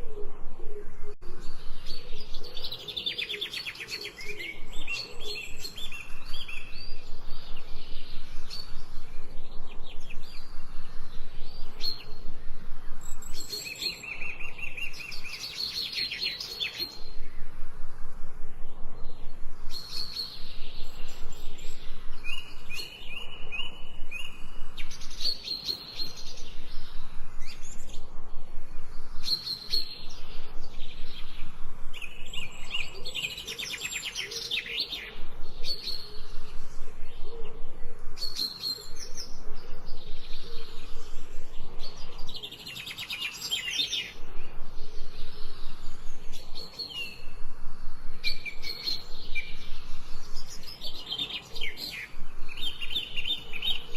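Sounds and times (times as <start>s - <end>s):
birds singing and trilling: 0.0s - 53.9s.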